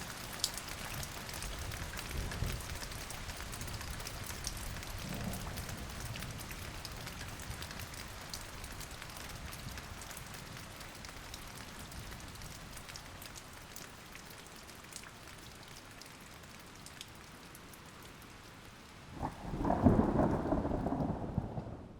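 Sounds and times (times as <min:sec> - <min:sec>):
rain falling: 0:00.0 - 0:21.9
loud rumble of thunder: 0:05.0 - 0:06.3, 0:19.2 - 0:21.9.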